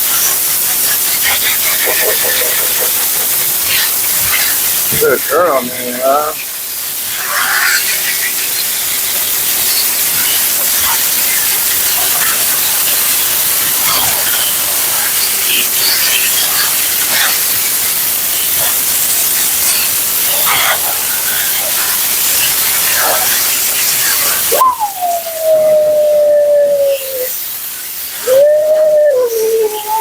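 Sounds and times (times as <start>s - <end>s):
dog howling: 24.4s - 27.4s, 28.2s - 30.0s
dog whining: 24.5s - 27.4s, 28.2s - 30.0s.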